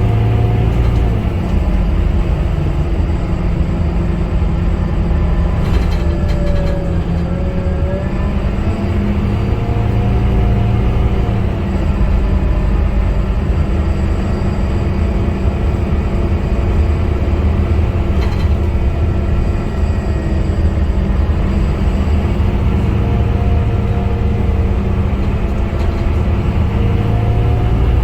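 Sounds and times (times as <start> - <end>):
bus diesel engine running: 0.0 - 28.0
whining tones: 0.0 - 28.0
brief rattle: 5.5 - 7.4.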